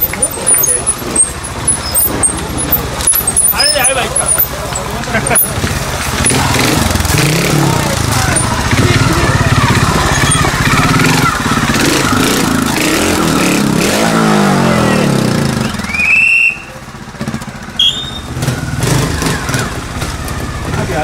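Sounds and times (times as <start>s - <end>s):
motorcycle engine blipping: 0.0s - 14.0s, 14.6s - 21.0s
rising squeal: 10.0s - 11.1s, 17.7s - 19.6s.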